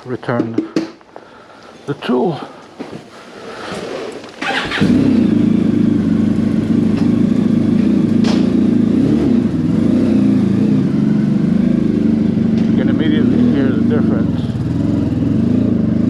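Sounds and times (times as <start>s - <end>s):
motorcycle engine starting and idling: 4.4s - 16.0s.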